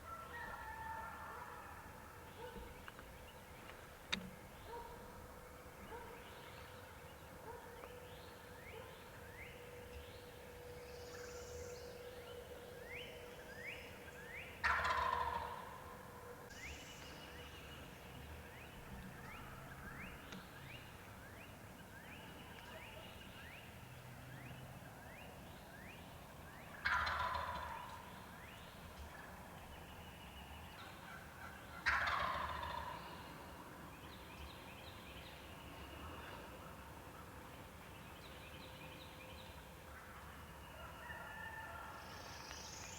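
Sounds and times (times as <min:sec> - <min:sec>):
turkey gobbling: 0:14.6 - 0:15.9, 0:26.8 - 0:28.0, 0:31.1 - 0:33.0.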